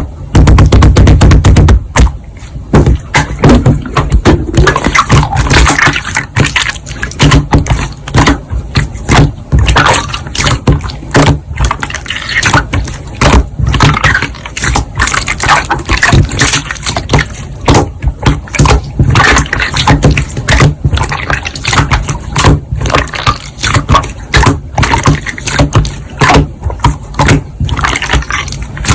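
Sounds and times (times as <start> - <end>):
slime squelching by hand: 0.0 - 28.9.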